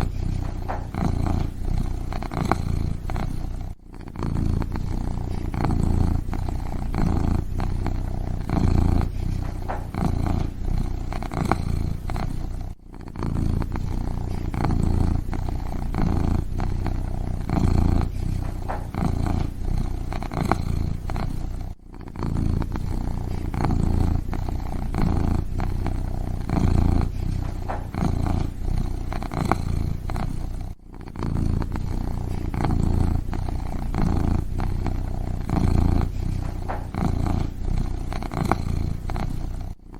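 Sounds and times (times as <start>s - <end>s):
kitten purring: 0.0s - 39.9s.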